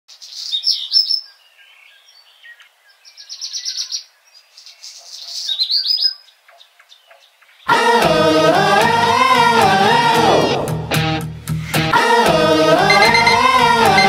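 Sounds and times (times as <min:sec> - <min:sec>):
songbirds chirping and trilling: 0:00.1 - 0:08.0.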